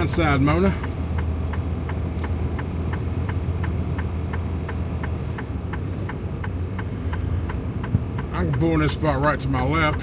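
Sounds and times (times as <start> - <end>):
diesel engine humming: 0.0 - 10.0
turn signal ticking: 0.0 - 10.0.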